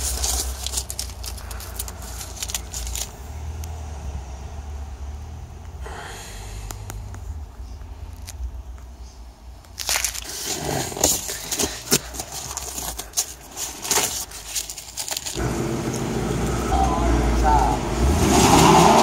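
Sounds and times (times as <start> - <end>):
masking tape crinkling and tearing: 0.0 - 3.3, 9.6 - 16.0.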